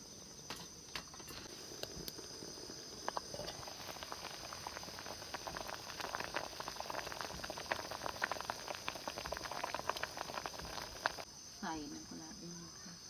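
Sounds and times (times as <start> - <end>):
pot of soup bubbling: 1.3 - 11.3.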